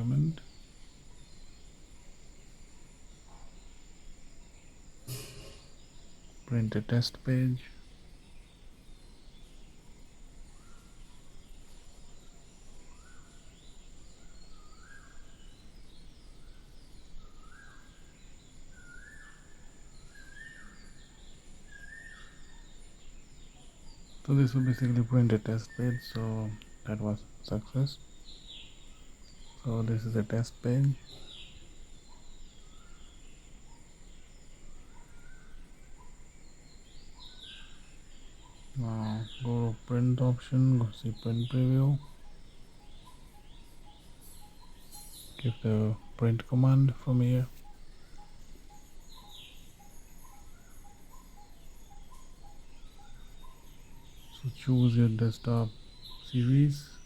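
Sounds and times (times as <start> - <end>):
falling bird chirps: 3.2 - 8.8.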